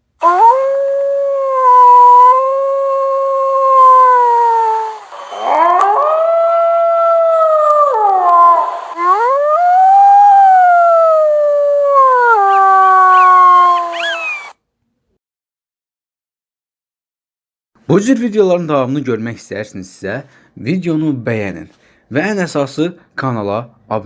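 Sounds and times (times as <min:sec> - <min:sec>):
wolves howling: 0:00.2 - 0:14.5.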